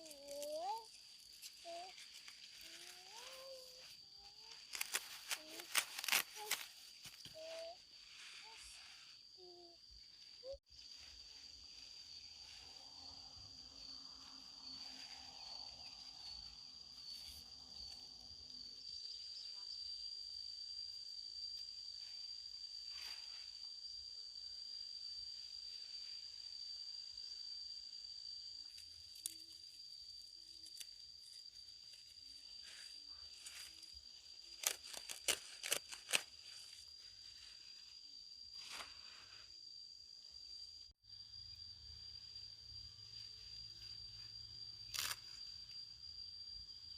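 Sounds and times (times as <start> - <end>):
insect chorus drone: 0.0 - 46.9
sharp snips: 4.4 - 7.6, 34.5 - 36.5.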